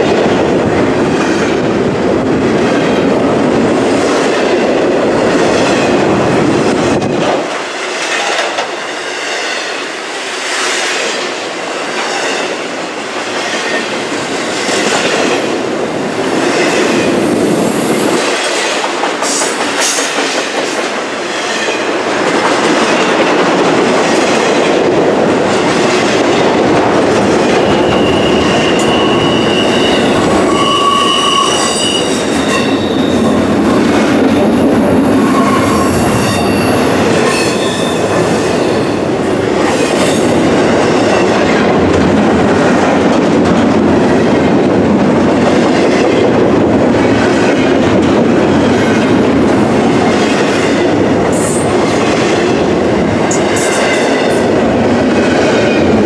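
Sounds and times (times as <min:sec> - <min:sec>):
train wheels rumbling on rails: 0:00.0 - 0:56.0
high thin wheel squeal: 0:27.7 - 0:33.3, 0:35.0 - 0:37.0.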